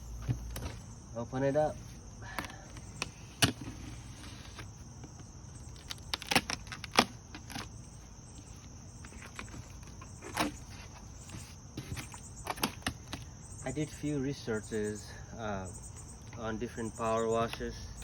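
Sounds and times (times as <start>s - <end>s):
cardboard packaging being opened: 2.4s - 13.2s
high-pitched background hiss: 7.3s - 18.0s.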